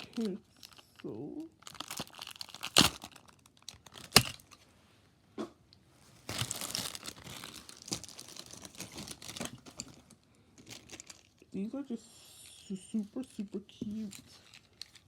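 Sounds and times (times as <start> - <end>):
plastic packaging crinkling and tearing: 0.0 - 4.6, 6.2 - 11.4
plastic packaging clicks: 1.6 - 4.6.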